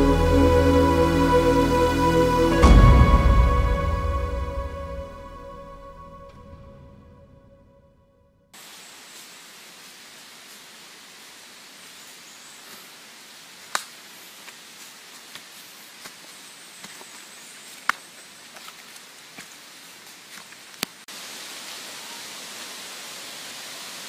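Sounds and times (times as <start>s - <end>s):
steady outdoor hiss: 0.0s - 5.7s, 8.6s - 24.0s.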